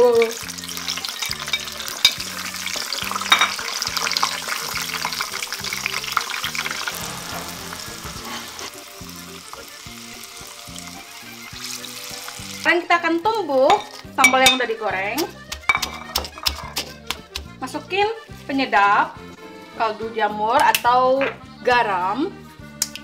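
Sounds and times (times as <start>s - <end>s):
food frying in hot oil: 0.0s - 12.7s.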